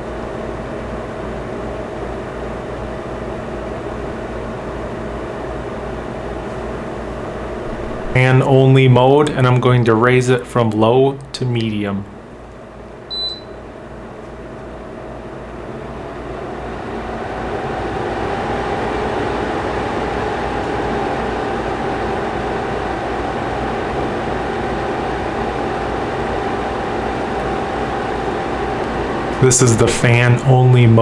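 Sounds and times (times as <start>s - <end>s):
air conditioner fan rushing: 0.0s - 31.0s
faint hum: 2.6s - 31.0s
air conditioner beep: 6.7s - 12.3s, 13.0s - 13.8s, 15.6s - 31.0s.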